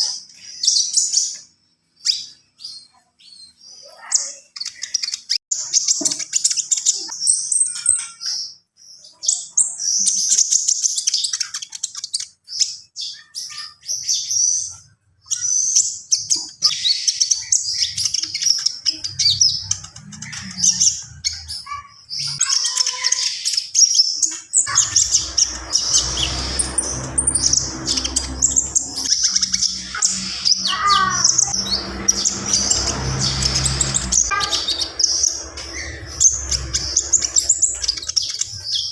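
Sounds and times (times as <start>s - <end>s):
songbird chirping: 0.0s - 38.9s
low hum: 24.7s - 38.5s.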